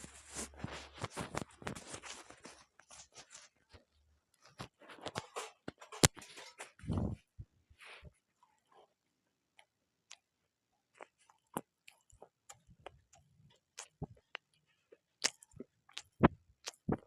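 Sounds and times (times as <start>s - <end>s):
chewing crunchy food: 10.9s - 17.0s.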